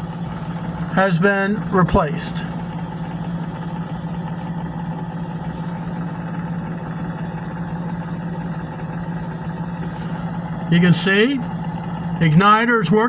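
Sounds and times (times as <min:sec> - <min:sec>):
furnace inducer motor humming: 0:00.0 - 0:13.0.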